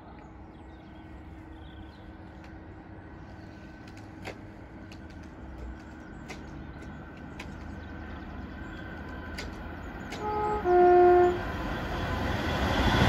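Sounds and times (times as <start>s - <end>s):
distant train rumble: 0.0s - 13.0s
sharp clicks: 3.8s - 10.3s.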